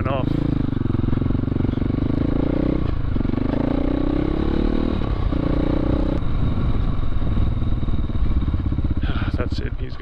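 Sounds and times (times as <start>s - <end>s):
dirt bike engine revving: 0.0s - 6.2s.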